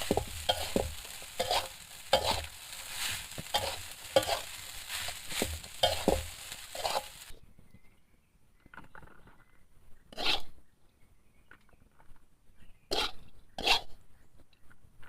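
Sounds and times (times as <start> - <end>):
sizzling: 0.0 - 7.3
spatula scraping frying pan: 0.0 - 7.3.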